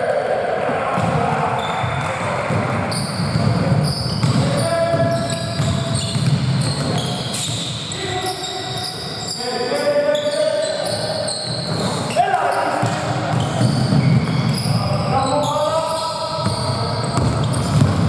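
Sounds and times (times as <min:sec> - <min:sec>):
players' voices: 0:00.0 - 0:18.0
basketball bouncing on court: 0:01.0 - 0:07.7, 0:12.7 - 0:14.8, 0:16.4 - 0:18.0
shoe squeaks: 0:02.9 - 0:17.8.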